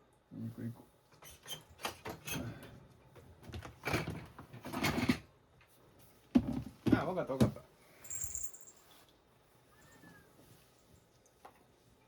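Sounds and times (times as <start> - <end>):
household knocks and clatters: 3.3 - 5.3, 6.3 - 7.6.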